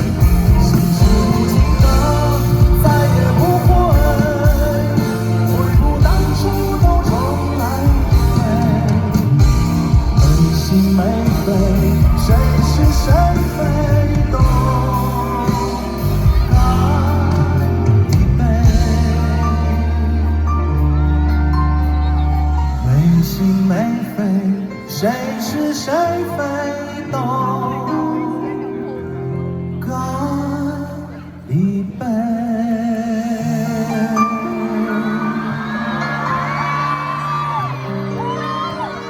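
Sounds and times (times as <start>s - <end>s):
live band with steady bass: 0.0s - 39.0s
person singing with vibrato: 0.0s - 39.0s.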